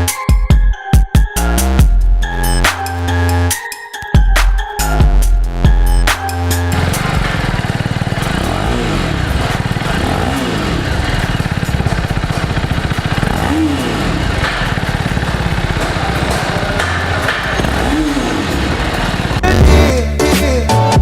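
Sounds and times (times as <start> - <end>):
motorcycle engine revving: 6.4 - 20.2.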